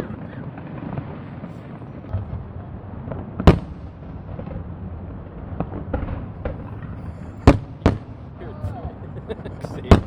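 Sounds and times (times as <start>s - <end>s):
faint firework cracks: 0.0s - 4.7s, 5.3s - 9.0s, 9.6s - 10.0s
firework bang: 2.0s - 9.0s, 9.8s - 10.0s.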